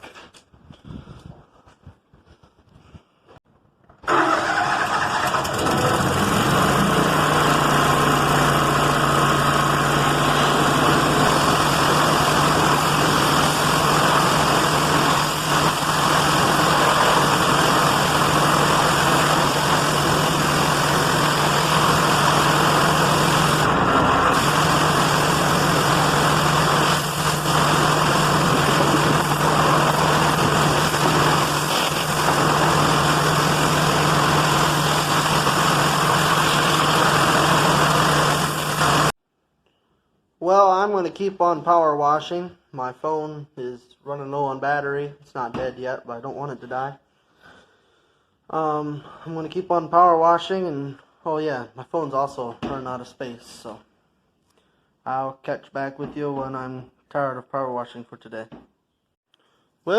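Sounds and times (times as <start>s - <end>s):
pressure washer engine running: 4.1s - 39.1s
water spray hissing: 10.2s - 23.6s, 24.3s - 39.1s.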